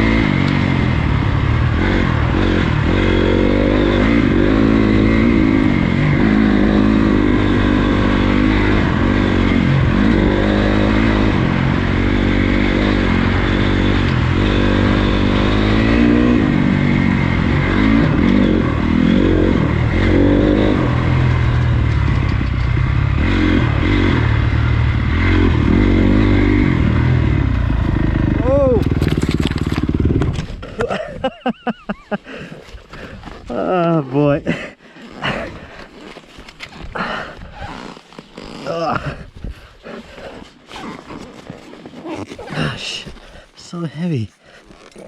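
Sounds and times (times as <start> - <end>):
dirt bike engine revving: 0.0 - 32.1.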